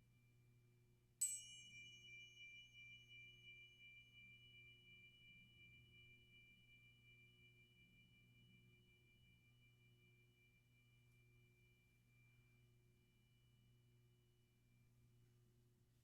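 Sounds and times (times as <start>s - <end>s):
tuning forks ringing: 1.2s - 9.3s.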